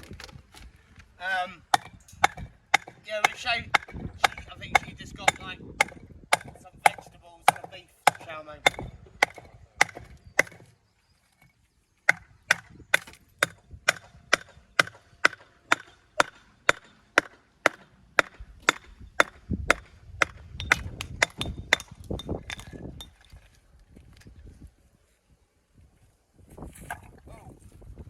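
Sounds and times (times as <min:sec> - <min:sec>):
hammer striking stone: 0:01.7 - 0:10.6, 0:12.1 - 0:23.1.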